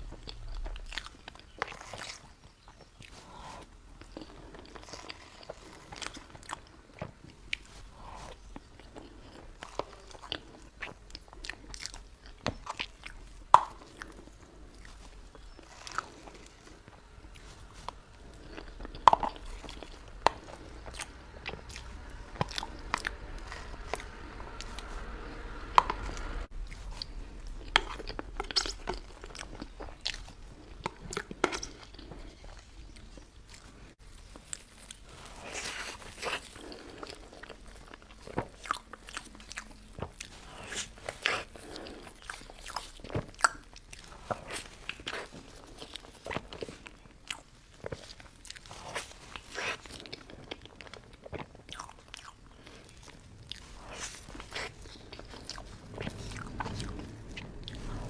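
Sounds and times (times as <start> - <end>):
close chewing: 0.0 - 58.0.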